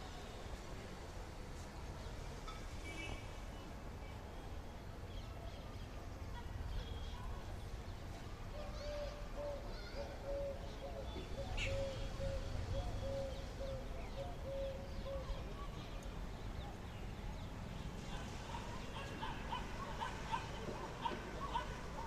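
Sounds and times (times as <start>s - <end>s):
birds calling: 8.8s - 22.0s.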